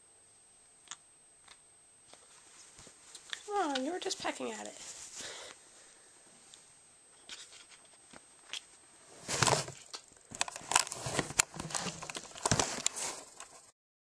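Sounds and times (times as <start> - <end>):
rustling and crinkling: 2.1 - 5.5, 6.4 - 13.7.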